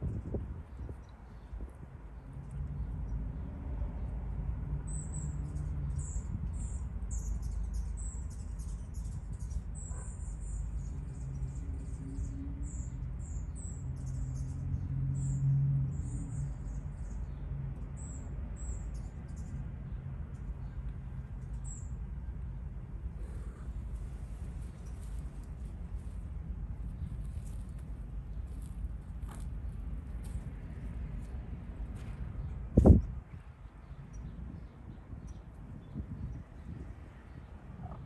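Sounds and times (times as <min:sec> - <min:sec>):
small birds chirping: 0:23.2 - 0:29.5.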